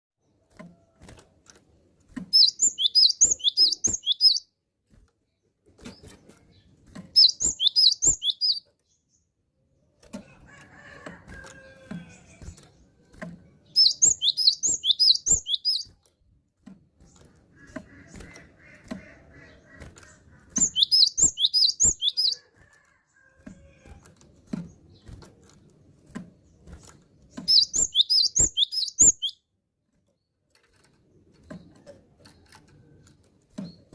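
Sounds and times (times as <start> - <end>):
faint clicks and rustling: 29.8 - 33.9.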